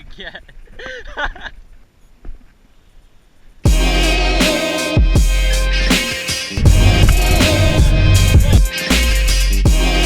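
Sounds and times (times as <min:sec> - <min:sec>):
faint low rumble: 0:06.6 - 0:08.6.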